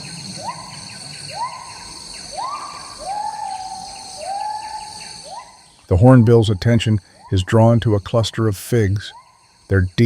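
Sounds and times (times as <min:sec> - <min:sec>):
bird whistling call: 0:00.0 - 0:05.8
insects droning: 0:00.0 - 0:10.0.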